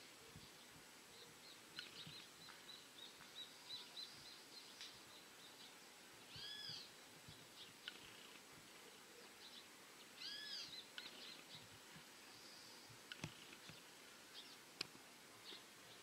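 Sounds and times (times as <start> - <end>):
arched bird call: 6.3 - 6.9, 10.2 - 11.4.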